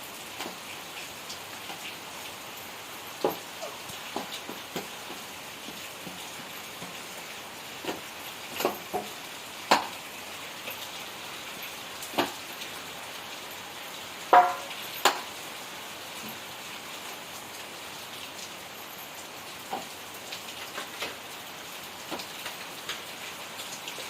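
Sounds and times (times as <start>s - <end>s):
steady rain: 0.0s - 24.0s.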